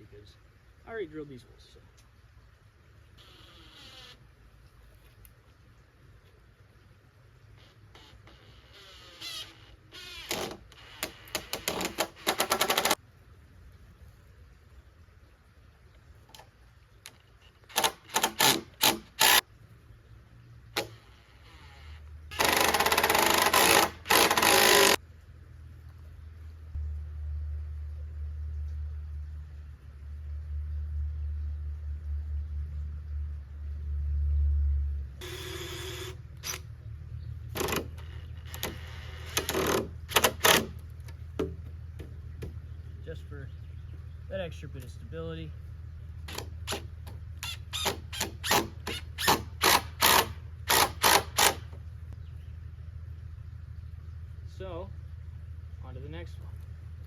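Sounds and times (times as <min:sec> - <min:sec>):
power drill driving into wood: 0:17.7 - 0:19.4, 0:22.3 - 0:25.0, 0:35.2 - 0:36.6, 0:47.4 - 0:51.7
low hum: 0:19.2 - 0:48.3, 0:49.2 - 0:57.0.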